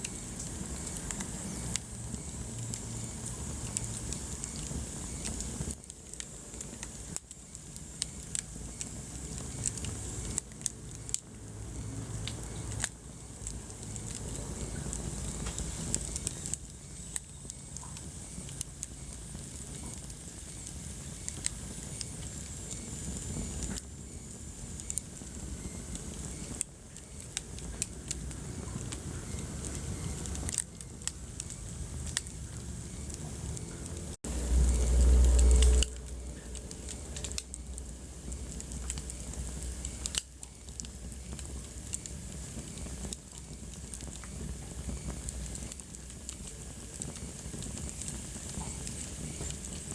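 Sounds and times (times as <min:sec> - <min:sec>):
wood fire crackling: 0:00.0 - 0:49.9
loud low rumble: 0:34.2 - 0:38.5.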